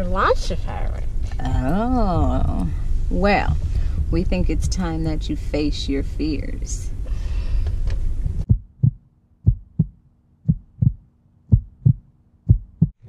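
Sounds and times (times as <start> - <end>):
heartbeat thumps: 8.2 - 13.0.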